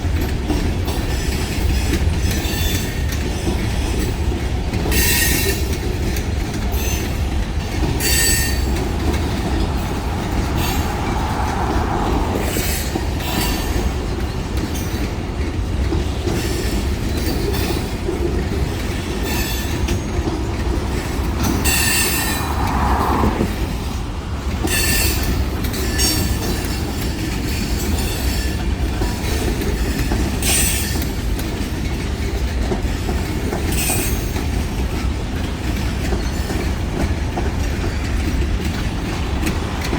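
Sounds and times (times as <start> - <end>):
freight train rumbling: 0.0 - 39.9
wheel squeals: 4.9 - 15.1.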